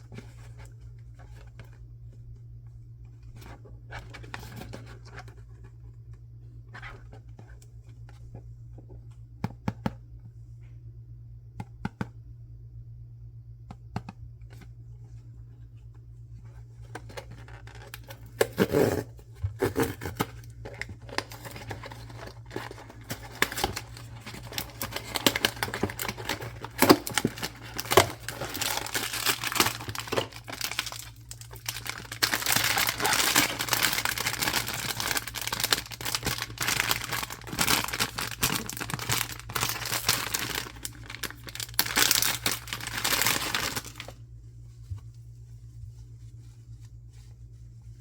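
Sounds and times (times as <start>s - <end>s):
packaging crinkling: 16.9s - 44.2s.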